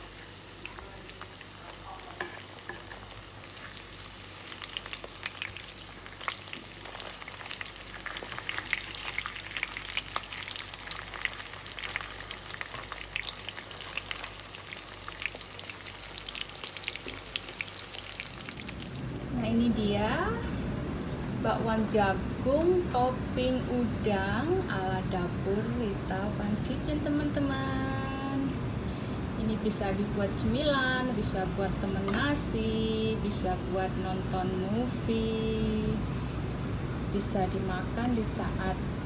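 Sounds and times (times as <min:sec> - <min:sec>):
fritters sizzling in hot oil: 0:00.0 - 0:19.2.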